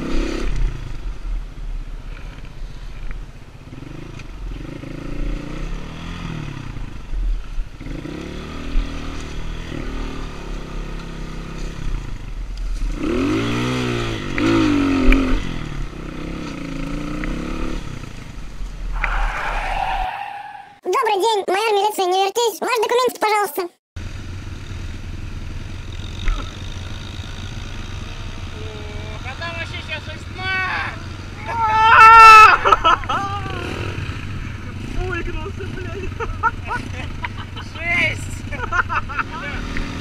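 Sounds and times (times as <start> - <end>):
dirt bike engine revving: 0.0 - 1.0, 3.6 - 7.0, 7.7 - 12.2, 12.8 - 20.8, 32.6 - 37.6, 38.2 - 40.0.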